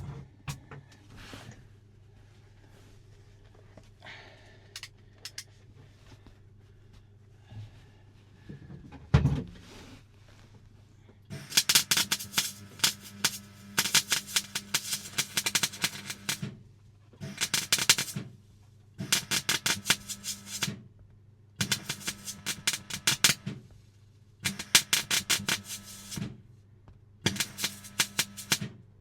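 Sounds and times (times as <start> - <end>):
welder crackling: 11.3 - 16.5, 17.2 - 18.3, 19.0 - 20.8, 21.6 - 23.5, 24.4 - 26.3, 27.3 - 28.7
welder hum: 11.3 - 16.5, 17.2 - 18.3, 19.0 - 20.8, 21.6 - 23.5, 24.4 - 26.3, 27.3 - 28.8.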